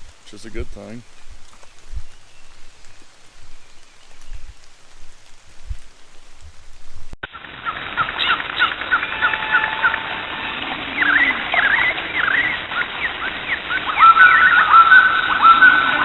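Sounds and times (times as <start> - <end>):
birds chirping and singing: 0.0 - 6.4, 8.0 - 16.0
whistled bird notes: 7.6 - 16.0.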